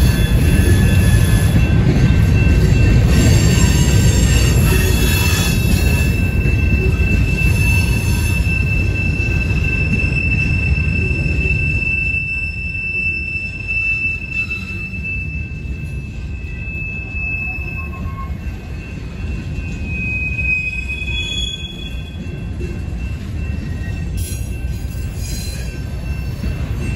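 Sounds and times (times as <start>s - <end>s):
train wheels rumbling on rail: 0.0s - 26.9s
high thin wheel squeal: 2.4s - 18.6s, 19.6s - 22.3s.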